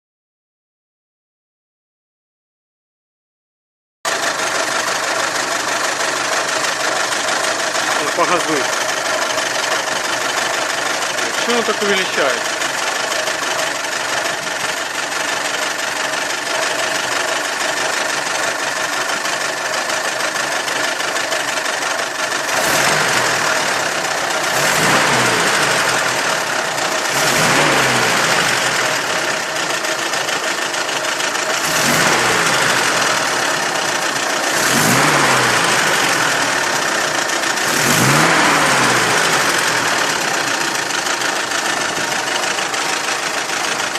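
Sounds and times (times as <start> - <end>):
engine knocking: 4.1 - 43.9
petrol engine idling and revving: 4.1 - 43.9.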